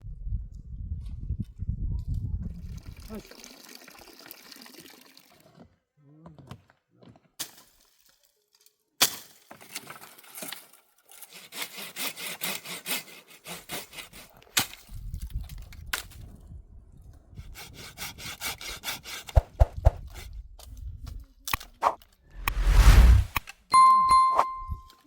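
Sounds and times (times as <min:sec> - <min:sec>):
hand saw cutting wood: 0:11.1 - 0:14.4, 0:17.5 - 0:19.5.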